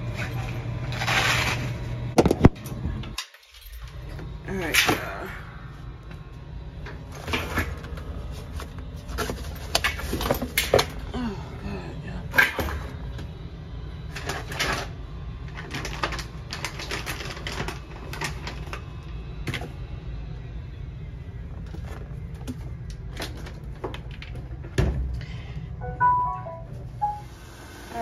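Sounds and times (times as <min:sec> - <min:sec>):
steady low hum: 0:00.0 - 0:27.6.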